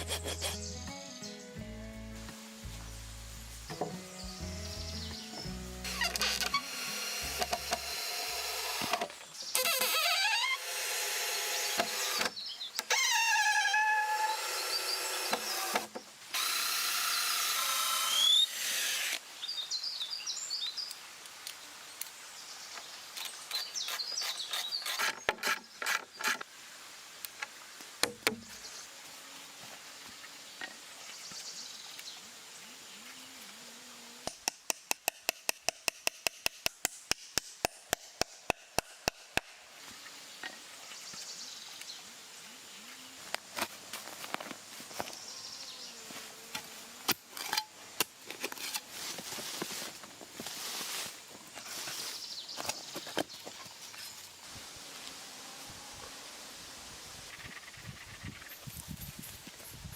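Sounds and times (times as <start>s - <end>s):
power tool running: 5.8s - 9.0s.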